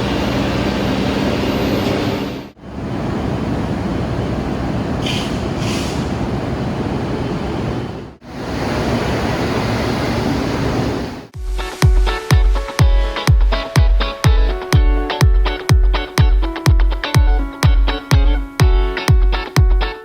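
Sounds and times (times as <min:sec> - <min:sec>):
train running: 0:00.0 - 0:11.2
brief hiss: 0:05.0 - 0:06.1
music with steady beat: 0:11.4 - 0:20.0.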